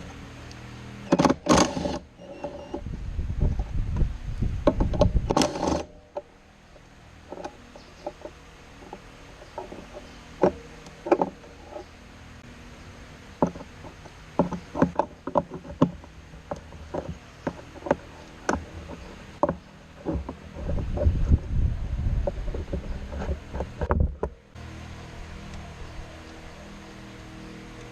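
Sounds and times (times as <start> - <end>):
faint steady background noise: 0.0 - 27.9
hand tools clicking and knocking: 13.4 - 21.0.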